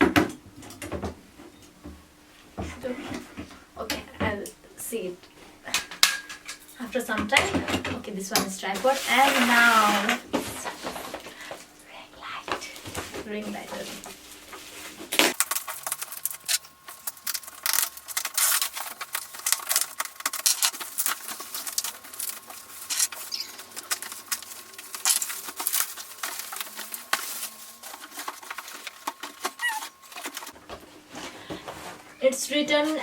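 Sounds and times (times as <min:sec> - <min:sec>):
packaging crackling and rustling: 0:08.7 - 0:11.4, 0:12.6 - 0:32.2.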